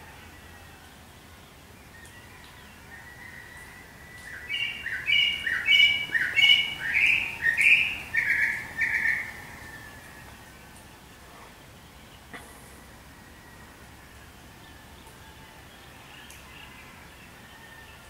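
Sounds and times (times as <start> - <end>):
songbird whistling: 4.2 - 9.4.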